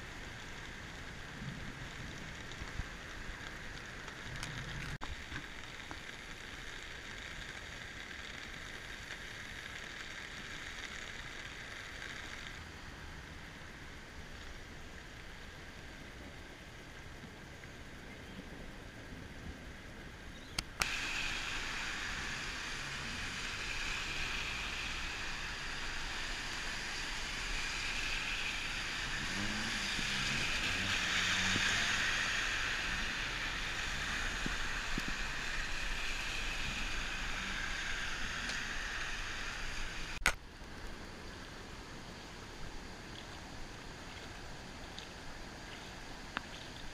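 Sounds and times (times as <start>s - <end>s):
floodwater rushing: 20.6s - 46.9s.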